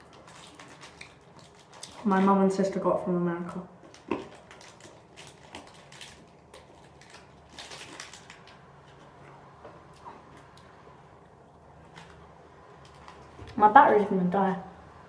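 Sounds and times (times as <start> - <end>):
wrapper crackling and crunching: 0.0 - 2.8, 3.8 - 9.2.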